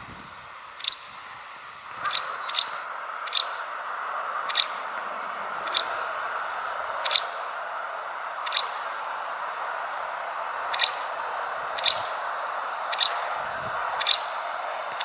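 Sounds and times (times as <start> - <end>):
steady hiss: 0.0 - 15.0
bird short sharp high calls: 0.8 - 1.2.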